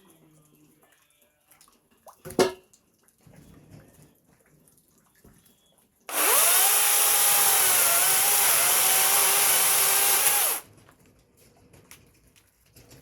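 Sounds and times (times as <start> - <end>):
power tool whining: 6.1 - 10.6.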